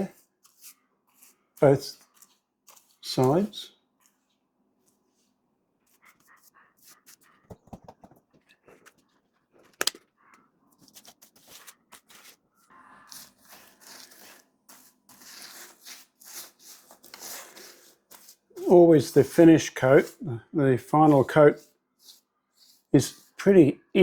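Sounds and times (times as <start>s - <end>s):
paintbrush swishes: 0.0s - 4.2s, 21.0s - 23.4s.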